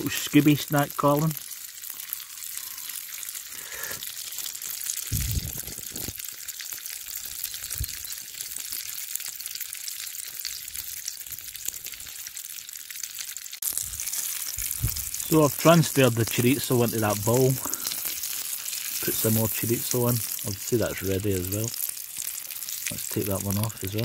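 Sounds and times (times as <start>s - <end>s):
sausage sizzling in a frying pan: 0.0s - 24.0s
low thumps: 5.1s - 5.7s, 14.6s - 15.1s.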